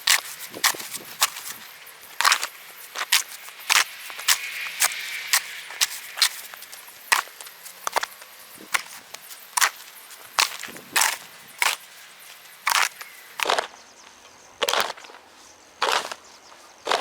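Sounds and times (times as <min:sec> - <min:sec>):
snow shovel scraping stone: 0:00.0 - 0:12.0.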